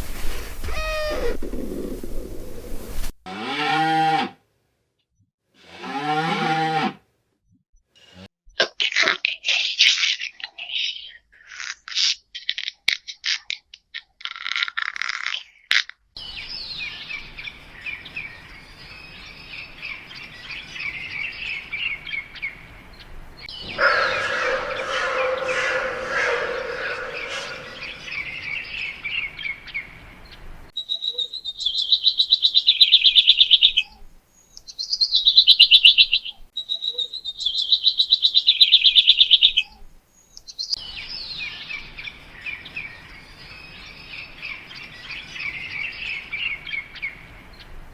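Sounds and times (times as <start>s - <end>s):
loud pulsing trilled bird calls: 16.2s - 30.0s
birds chirping: 16.2s - 47.8s.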